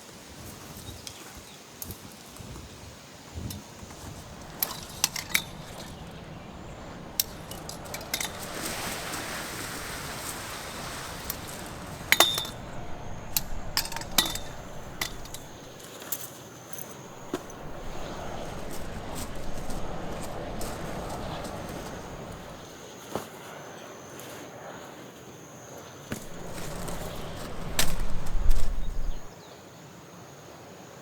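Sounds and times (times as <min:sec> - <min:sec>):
soft rush of noise: 0:03.8 - 0:15.8, 0:17.1 - 0:22.6, 0:26.1 - 0:29.3
hard objects clinking and knocking: 0:03.9 - 0:10.0, 0:11.0 - 0:15.8, 0:17.1 - 0:22.6.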